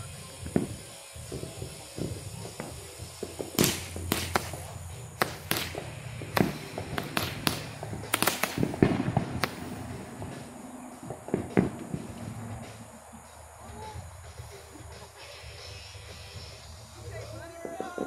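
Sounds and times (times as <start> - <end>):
fireworks bangs and crackles: 0.0 - 15.0, 16.5 - 18.0.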